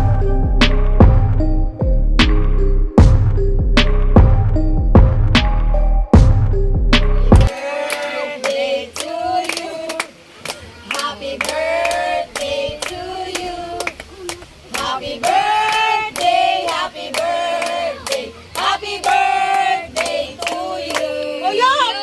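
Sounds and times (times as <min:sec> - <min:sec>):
group of people singing: 0:07.4 - 0:10.2, 0:10.8 - 0:14.0, 0:14.7 - 0:22.0
people clapping along: 0:07.4 - 0:22.0.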